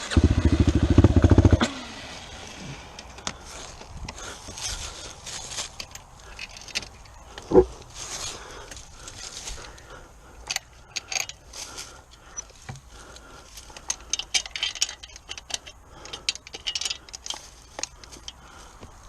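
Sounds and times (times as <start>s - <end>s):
metallic clinking and rattling: 4.1s - 7.7s, 10.4s - 12.8s, 13.4s - 18.5s.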